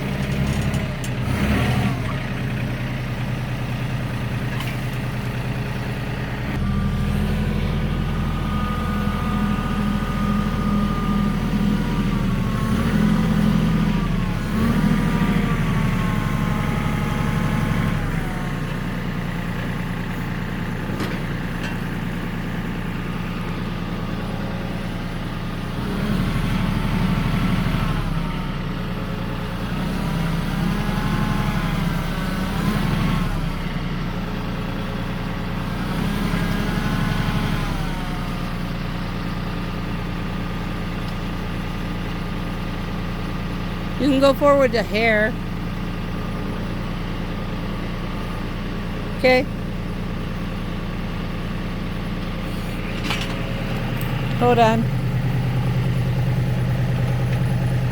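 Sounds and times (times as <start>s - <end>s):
diesel tractor engine running: 0.0s - 57.9s.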